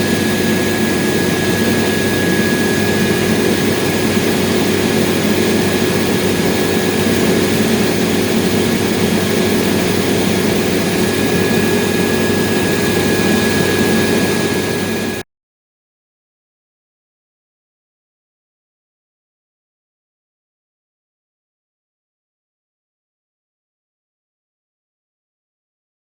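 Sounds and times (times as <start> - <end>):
combine harvester running: 0.0 - 15.2
high-pitched whine: 0.0 - 15.2.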